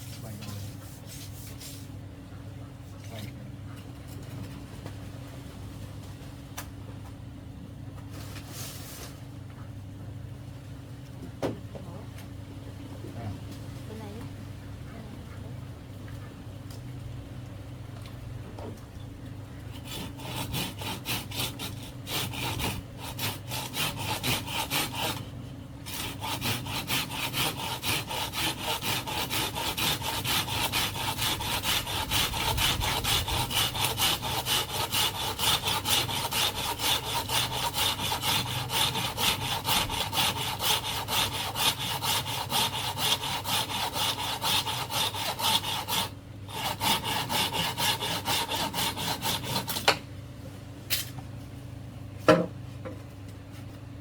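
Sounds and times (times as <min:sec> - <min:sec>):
hand saw cutting bamboo: 0:19.7 - 0:50.0.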